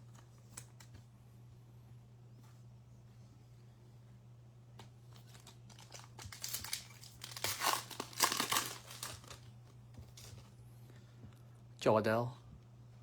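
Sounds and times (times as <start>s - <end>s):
foil wrapper tearing and crinkling: 5.1s - 10.4s.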